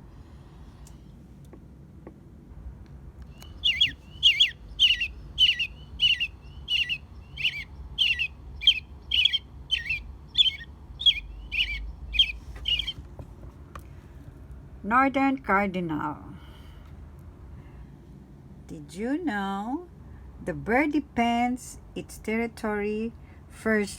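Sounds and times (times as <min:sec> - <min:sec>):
robin calling: 0:03.3 - 0:13.0.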